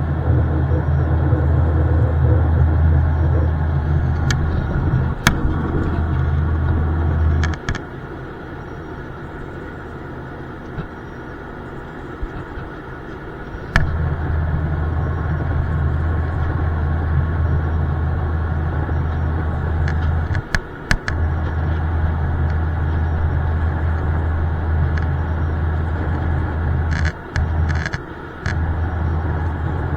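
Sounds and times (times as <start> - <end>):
jet engine drone: 0.0 - 29.9
click: 4.1 - 6.3, 13.7 - 14.1, 19.8 - 21.8, 24.9 - 28.6.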